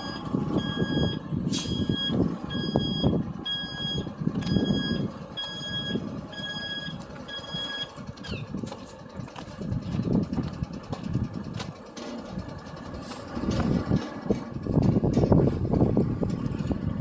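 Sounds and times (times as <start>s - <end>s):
reversing alarm beeping: 0.0s - 8.4s.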